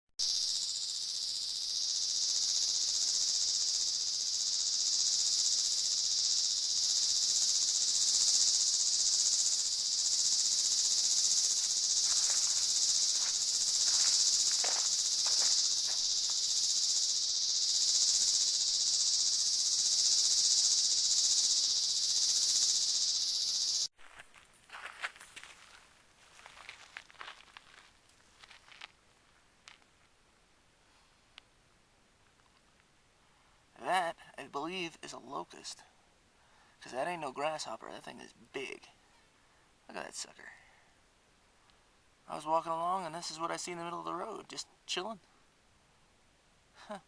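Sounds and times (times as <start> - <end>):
insects chorus: 0.2 - 23.9, 33.8 - 35.9, 36.5 - 38.9, 42.3 - 45.2.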